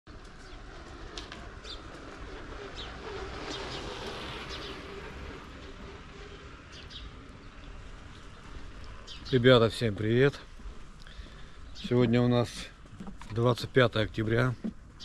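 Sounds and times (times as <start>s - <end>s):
small birds chirping: 1.6s - 15.0s.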